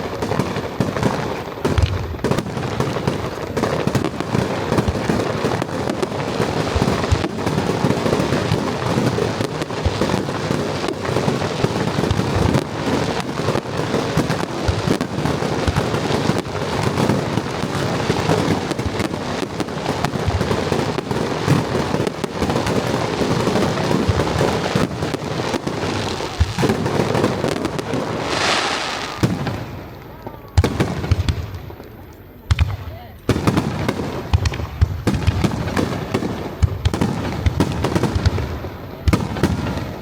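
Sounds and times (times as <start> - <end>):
fireworks booming and crackling: 0.0 - 40.0
hissing crackle: 0.0 - 40.0.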